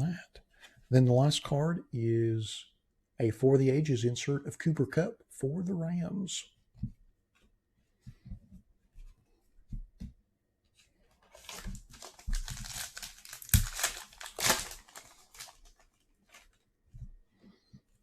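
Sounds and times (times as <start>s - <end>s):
pack wrapper tearing and crinkling: 11.3s - 16.5s.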